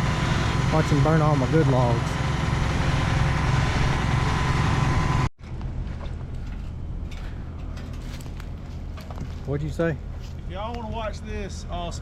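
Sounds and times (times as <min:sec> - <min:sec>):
heavy machinery engine running: 0:00.0 - 0:09.3
distant engine rumble: 0:00.0 - 0:12.0.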